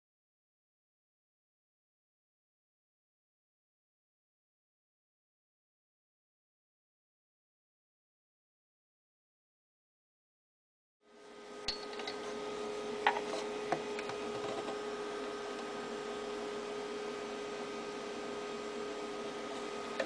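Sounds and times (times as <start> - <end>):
electrical hum over hiss: 11.1 - 20.0.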